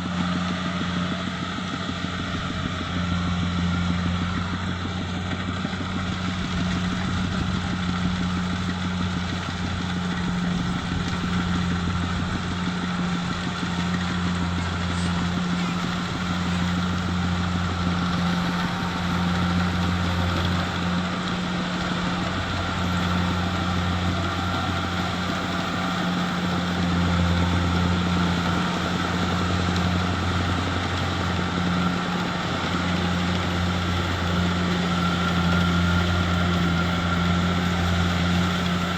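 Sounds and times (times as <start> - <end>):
combine harvester engine droning: 0.0 - 38.9.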